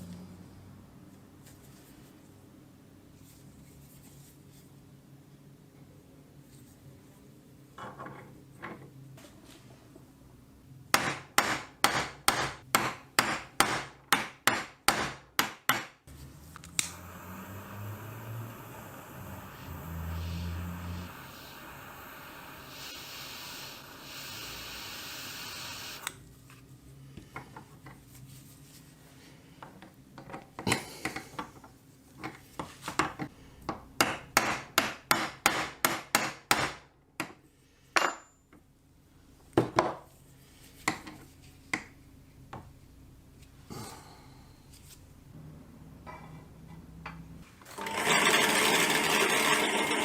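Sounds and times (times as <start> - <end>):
steady noise: 16.2 - 26.1.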